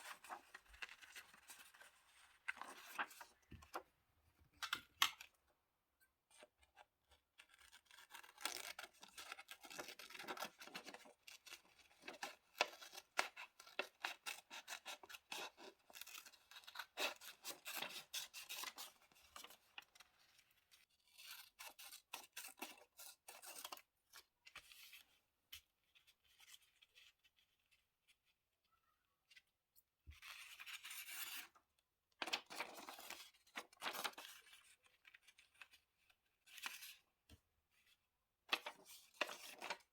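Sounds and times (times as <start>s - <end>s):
scissors snipping paper: 7.4s - 18.8s
paper handling: 38.5s - 39.9s.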